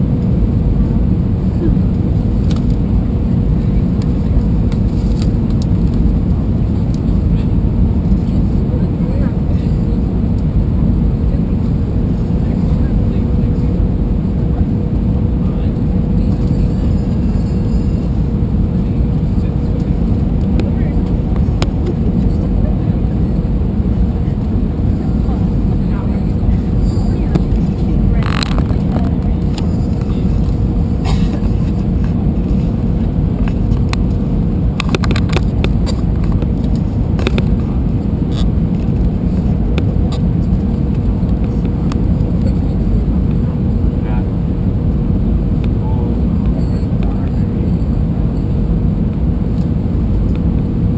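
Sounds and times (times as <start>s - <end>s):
aircraft cabin engine rumble: 0.0s - 50.9s
faint steady hum: 0.0s - 50.9s.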